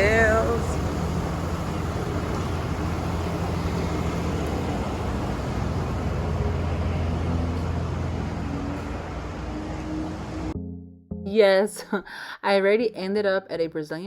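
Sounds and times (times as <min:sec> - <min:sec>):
vehicle engine humming: 0:00.0 - 0:10.6.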